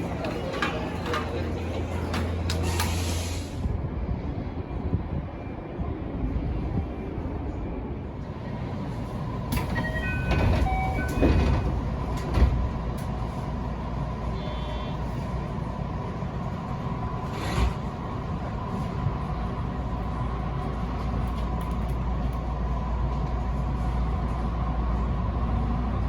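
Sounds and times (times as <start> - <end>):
wheels clacking over track joints: 0.0 - 3.0
electric train rumble: 0.0 - 26.0.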